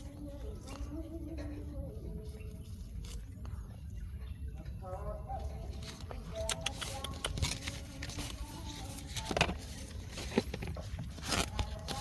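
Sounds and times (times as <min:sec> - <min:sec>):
rustling and crackling: 0:05.3 - 0:12.0.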